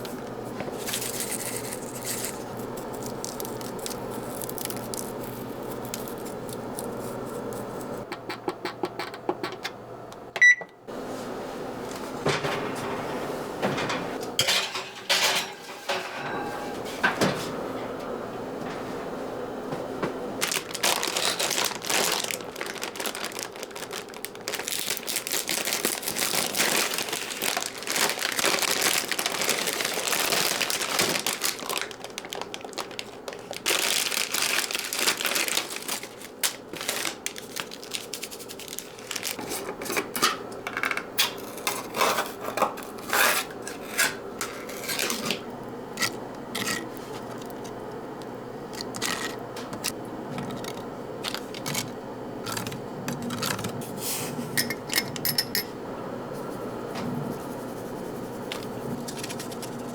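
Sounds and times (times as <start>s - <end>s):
packaging rustling and crinkling: 0.7s - 8.0s, 20.4s - 40.2s, 44.4s - 54.0s, 58.5s - 59.9s.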